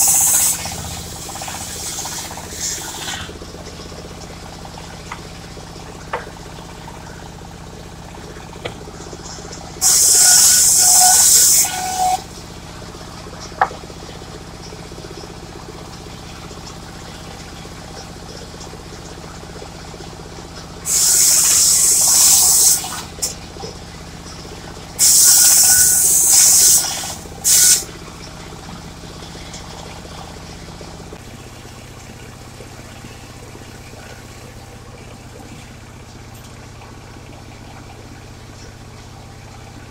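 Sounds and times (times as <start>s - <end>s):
saw blade hissing through wood: 0.0s - 0.7s, 1.4s - 3.3s, 9.8s - 12.2s, 20.9s - 23.1s, 25.0s - 27.9s
sawmill engine running: 0.0s - 39.9s.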